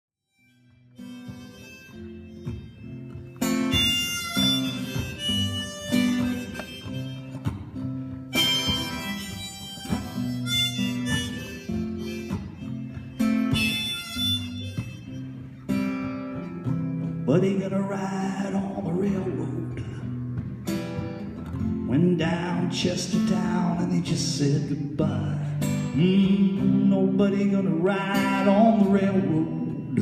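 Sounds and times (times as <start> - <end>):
harmonica melody: 0.3 - 17.2
acoustic guitar strumming: 0.3 - 30.0.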